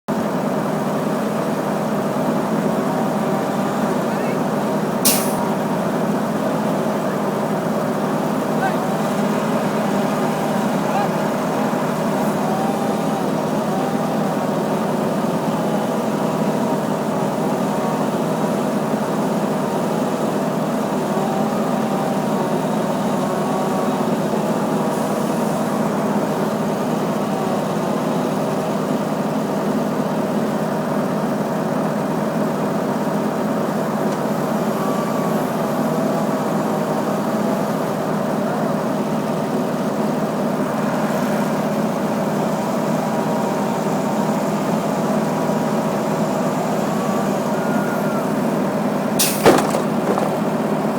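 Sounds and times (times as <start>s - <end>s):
engine running: 0.1s - 50.9s.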